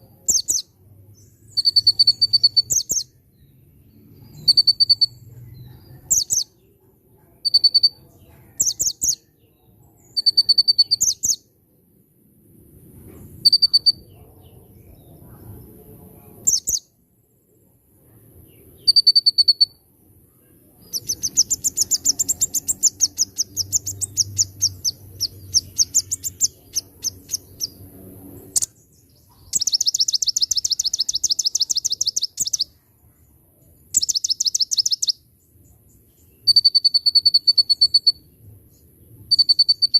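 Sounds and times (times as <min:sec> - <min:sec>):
fast twittering bird trills: 0:00.2 - 0:00.7, 0:01.4 - 0:03.2, 0:04.2 - 0:05.2, 0:06.0 - 0:06.6, 0:07.4 - 0:09.3, 0:10.0 - 0:11.5, 0:13.4 - 0:14.1, 0:16.4 - 0:16.9, 0:18.8 - 0:19.8, 0:20.8 - 0:32.8, 0:33.9 - 0:35.2, 0:36.4 - 0:38.3, 0:39.3 - 0:39.9
short high bird chirps: 0:01.4 - 0:03.2, 0:04.2 - 0:05.2, 0:10.0 - 0:11.4, 0:13.4 - 0:14.2, 0:18.8 - 0:19.8, 0:20.8 - 0:27.8, 0:28.5 - 0:32.8, 0:33.9 - 0:35.2, 0:36.4 - 0:38.3, 0:39.3 - 0:39.9.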